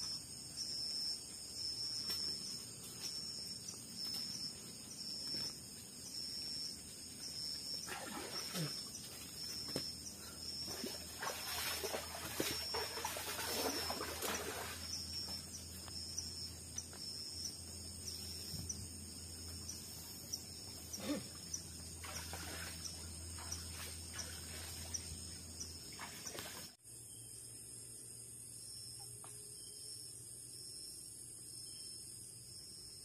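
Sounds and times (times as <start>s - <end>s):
insects chirping: 0.0s - 33.0s.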